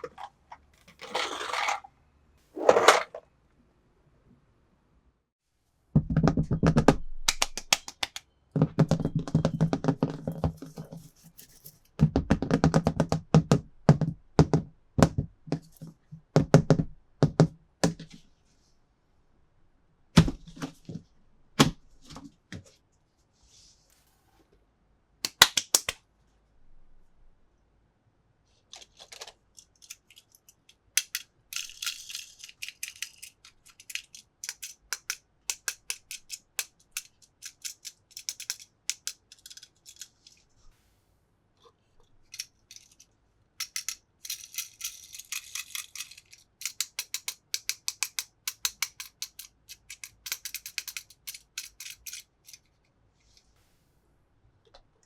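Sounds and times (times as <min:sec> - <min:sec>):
toy pieces clicking and rattling: 0:00.0 - 0:01.9, 0:28.8 - 0:40.4, 0:42.2 - 0:52.8.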